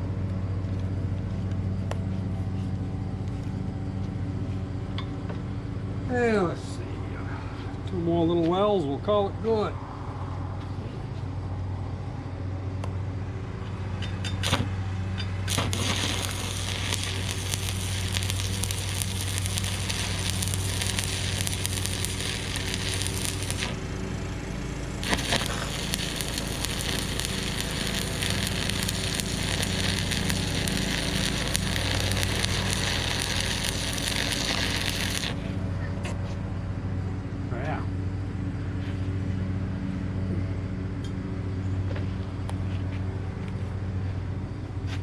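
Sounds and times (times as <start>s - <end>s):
welding machine low hum: 13.6s - 35.8s
sharp ticks of arc striking: 14.3s - 23.9s, 25.0s - 35.4s
welding arc crackling: 14.3s - 35.6s.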